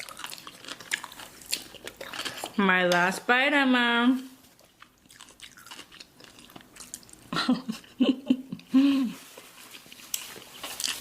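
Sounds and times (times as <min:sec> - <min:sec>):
chewing mouth sounds: 0:00.0 - 0:02.6, 0:04.5 - 0:07.3
person humming or giggling: 0:07.3 - 0:09.3.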